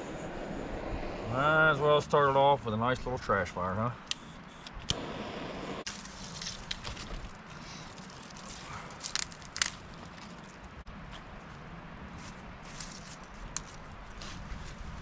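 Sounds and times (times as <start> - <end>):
fire snapping: 5.7 - 10.6
burning paper crackling: 5.8 - 10.8.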